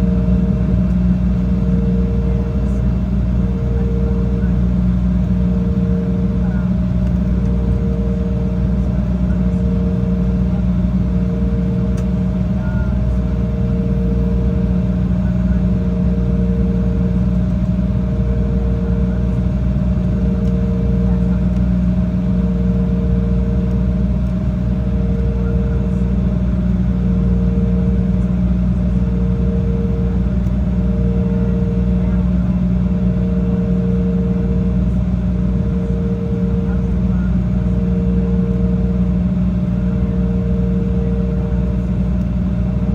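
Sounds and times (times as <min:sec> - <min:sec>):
jet engine cabin drone: 0:00.0 - 0:42.9
mid-pitched pulsing hum: 0:00.0 - 0:42.9.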